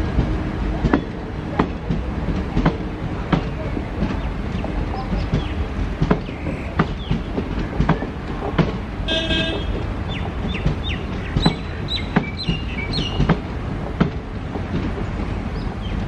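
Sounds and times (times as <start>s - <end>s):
train wheels knocking over rail joints: 0.0s - 16.0s
train horn toot: 9.0s - 9.8s.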